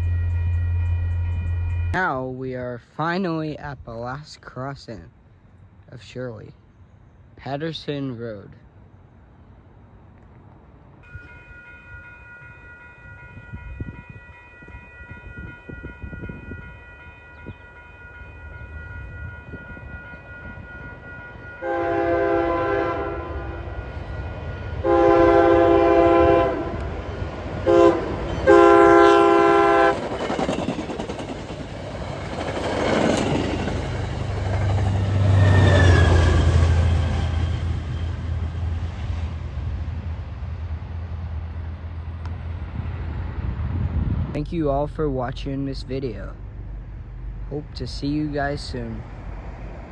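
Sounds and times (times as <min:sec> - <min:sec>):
train passing with rumble: 0:00.0 - 0:02.3, 0:08.7 - 0:49.9
train horn: 0:11.1 - 0:27.0, 0:27.6 - 0:30.1.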